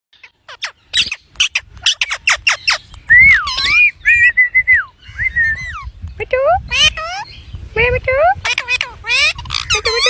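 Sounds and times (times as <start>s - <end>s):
parrot squawking: 0.2s - 4.3s, 6.7s - 7.4s, 8.4s - 10.0s.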